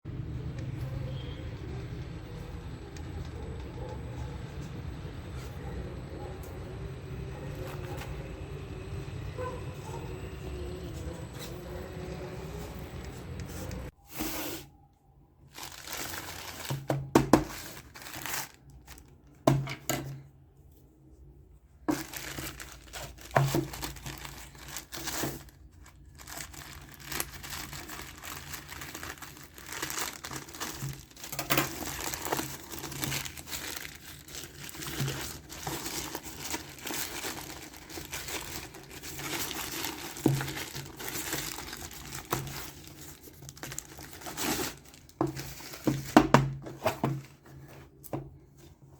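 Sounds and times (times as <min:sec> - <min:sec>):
packaging crinkling: 0:15.4 - 0:19.6, 0:21.8 - 0:47.3
packaging tearing: 0:15.6 - 0:19.1, 0:21.9 - 0:46.1.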